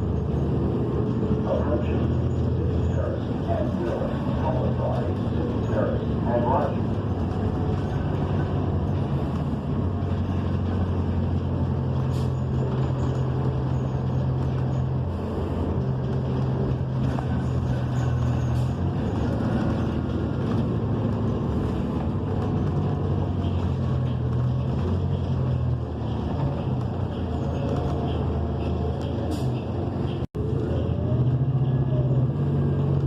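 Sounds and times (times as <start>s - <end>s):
bus engine droning: 0.0s - 33.0s
road noise: 0.0s - 33.0s.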